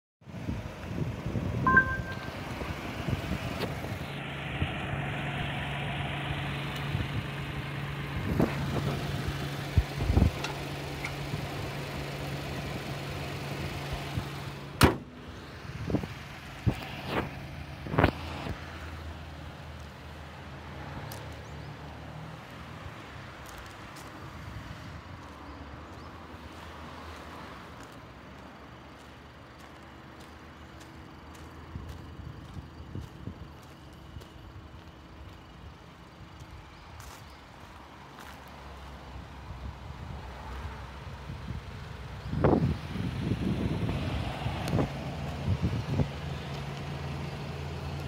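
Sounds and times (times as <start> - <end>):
car engine idling: 1.7 - 18.2
car bonnet slamming shut: 14.8 - 15.2.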